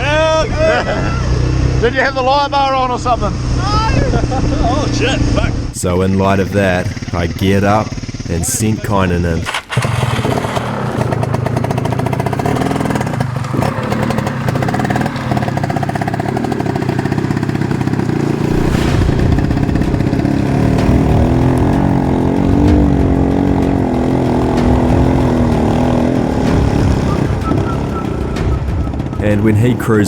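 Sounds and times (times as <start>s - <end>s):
dirt bike engine under throttle: 6.0s - 29.2s.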